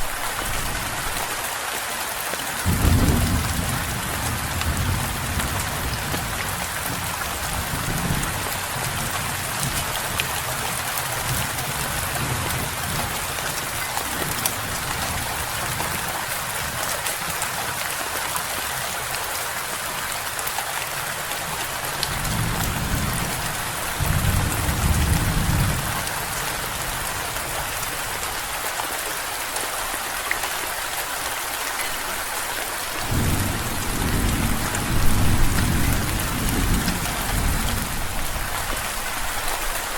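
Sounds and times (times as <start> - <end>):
steady rain hiss: 0.0 - 39.9
distant thunder rumbling: 2.7 - 9.8, 22.1 - 27.1, 33.0 - 38.5.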